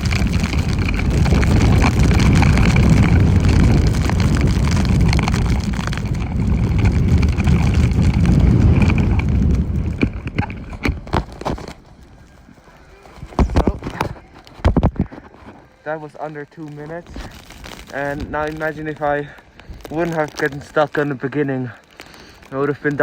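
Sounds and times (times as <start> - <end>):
snowboard sliding through snow: 0.0 - 14.4, 15.5 - 21.7
wind on microphone: 0.0 - 15.8, 16.9 - 20.7.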